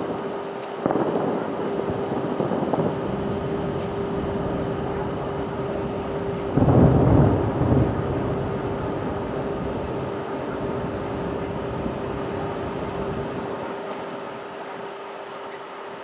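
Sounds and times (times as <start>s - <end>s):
steady hum: 0.0s - 16.0s
distant firework boom: 0.8s - 13.4s.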